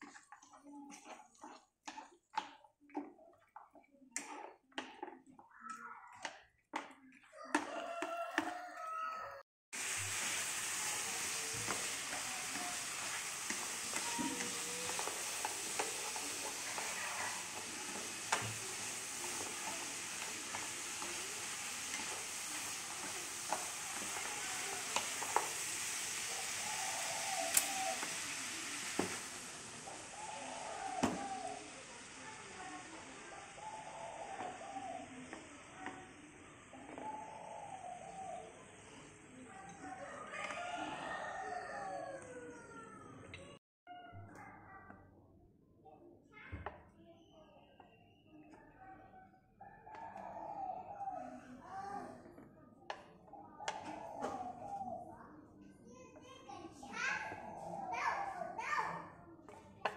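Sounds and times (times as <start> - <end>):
meat sizzling in a wok: 9.8 - 39.2
chopsticks clicking against pan: 27.5 - 27.7.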